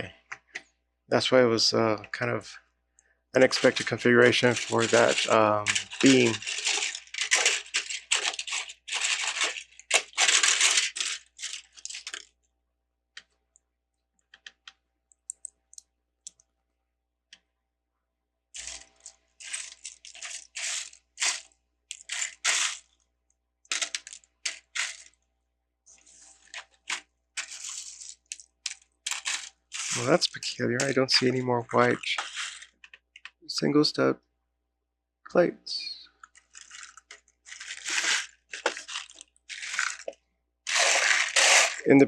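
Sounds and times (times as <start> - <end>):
plastic bricks clattering: 3.4 - 12.3, 18.6 - 23.0, 23.7 - 25.2, 26.4 - 33.3, 36.2 - 41.9.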